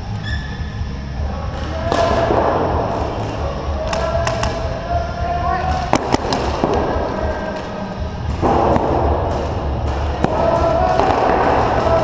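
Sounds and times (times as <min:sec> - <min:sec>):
noisy background: 0:00.0 - 0:12.0
paintball marker shots: 0:01.9 - 0:04.6, 0:05.7 - 0:07.7.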